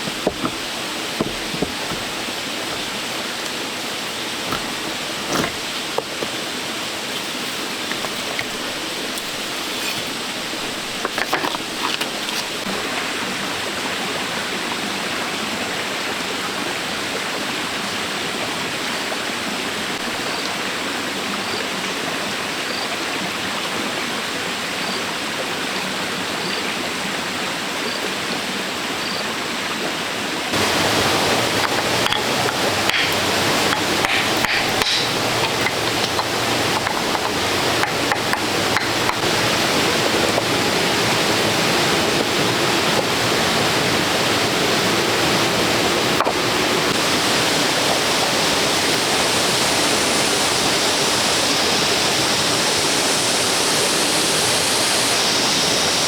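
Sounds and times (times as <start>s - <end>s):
short knocks: 0.0s - 3.1s, 30.6s - 39.3s
running water rushing: 0.0s - 56.0s.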